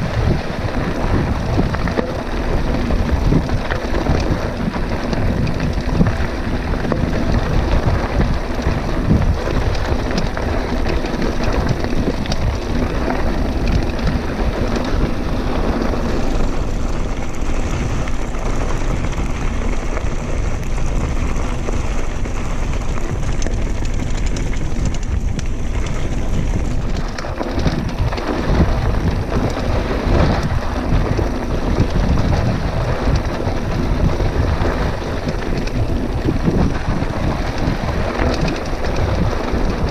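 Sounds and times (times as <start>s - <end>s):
bike rattling over rough trail: 0.0s - 39.9s
wind rushing over microphone: 0.0s - 39.9s.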